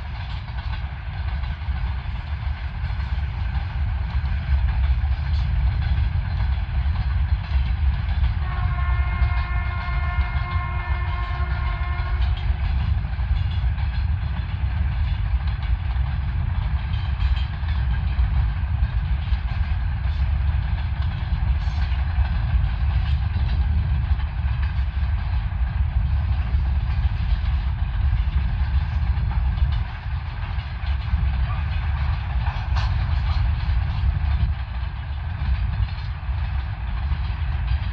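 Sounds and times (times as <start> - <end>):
freight train rumbling: 0.0 - 37.9
locomotive horn: 8.4 - 12.4.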